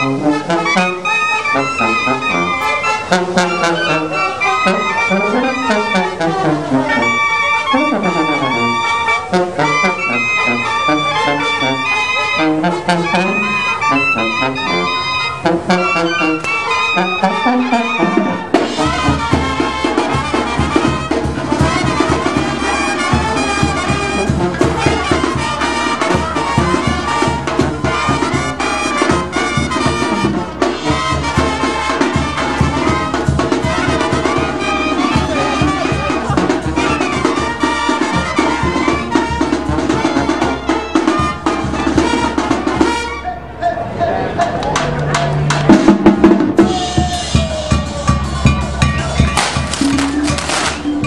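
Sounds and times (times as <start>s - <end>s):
trumpets and trombones: 0.0s - 51.0s
bass and drum beat: 17.9s - 43.1s, 44.8s - 51.0s.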